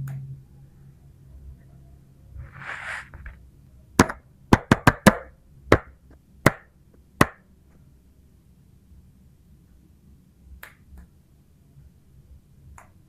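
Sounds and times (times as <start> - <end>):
soft scrape or rustle: 2.4 - 3.4.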